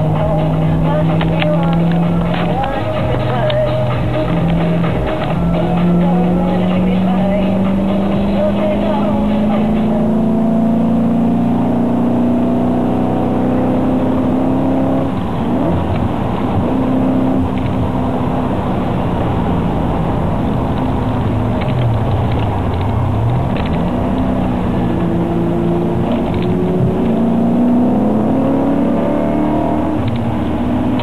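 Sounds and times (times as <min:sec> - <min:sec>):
car engine accelerating: 0:00.0 - 0:31.0
road noise: 0:00.0 - 0:31.0.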